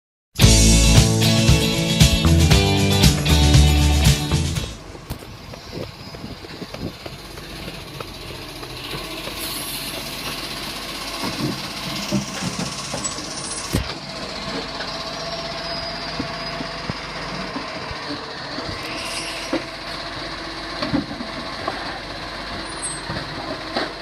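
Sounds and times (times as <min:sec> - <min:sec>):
large vehicle rumbling: 0:00.4 - 0:24.0
knocks and clanks: 0:11.1 - 0:15.0, 0:19.5 - 0:24.0.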